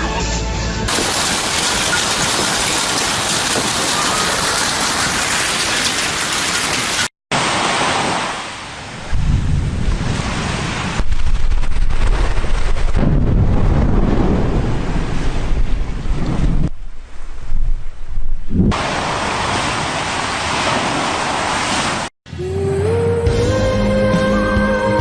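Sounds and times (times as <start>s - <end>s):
heavy rain pouring: 0.9s - 16.7s
wind rumbling on microphone: 9.0s - 18.9s.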